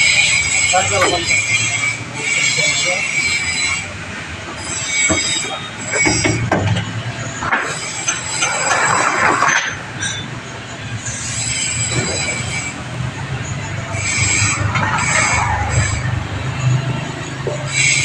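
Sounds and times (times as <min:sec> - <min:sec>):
loud rushing surge: 0:10.6 - 0:17.4.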